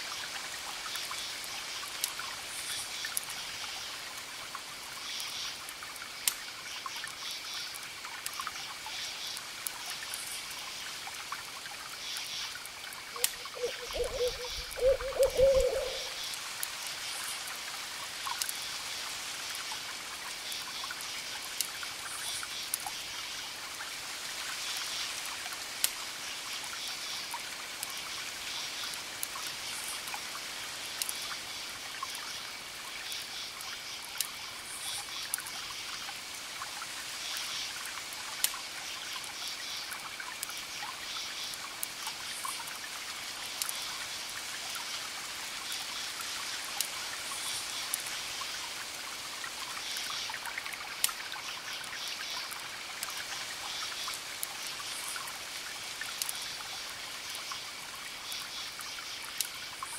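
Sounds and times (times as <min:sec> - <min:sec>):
steady hiss: 0:00.0 - 0:59.9
owl hooting: 0:13.2 - 0:16.2.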